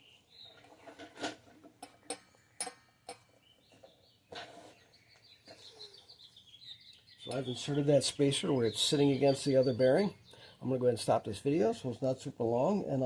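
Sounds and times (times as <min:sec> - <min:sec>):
light metallic clinks and knocks: 0:00.6 - 0:04.6.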